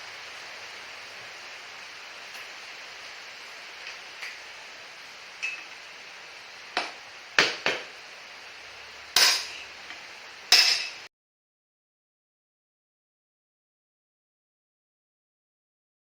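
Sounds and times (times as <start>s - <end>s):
steady hiss: 0.0s - 11.1s
hammer striking metal: 6.8s - 7.9s, 9.2s - 9.7s, 10.5s - 11.1s.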